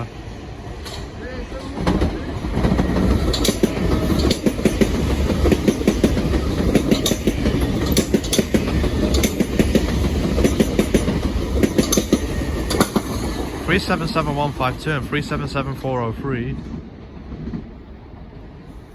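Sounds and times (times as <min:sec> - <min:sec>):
train passing rumble: 0:00.0 - 0:18.9
wheels clacking over rail joints: 0:00.8 - 0:13.7.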